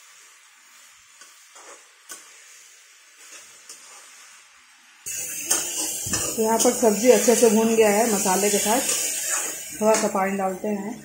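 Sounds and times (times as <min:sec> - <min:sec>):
vegetables sizzling in a pan: 0:00.0 - 0:11.0
spatula scraping and tapping pan: 0:01.2 - 0:02.5, 0:03.2 - 0:04.2, 0:05.1 - 0:07.5, 0:08.2 - 0:10.4.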